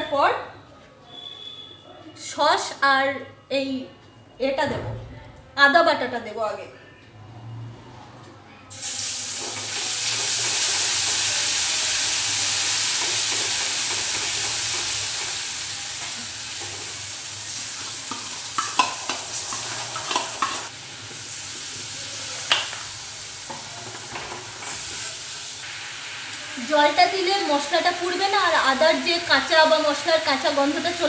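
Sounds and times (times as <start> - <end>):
spices sizzling in hot oil: 8.7 - 31.0
spoon scraping a pan: 17.9 - 20.7.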